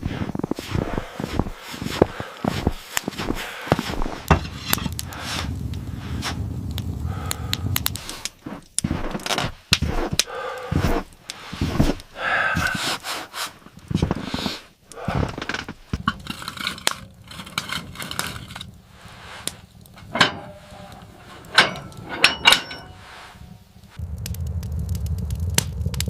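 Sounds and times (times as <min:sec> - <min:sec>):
objects being handled: 0:02.9 - 0:06.4, 0:07.9 - 0:24.0.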